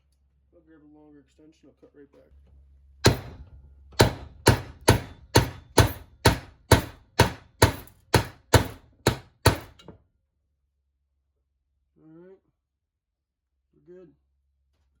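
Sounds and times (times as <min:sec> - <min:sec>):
hammer striking metal socket: 0:04.0 - 0:09.9.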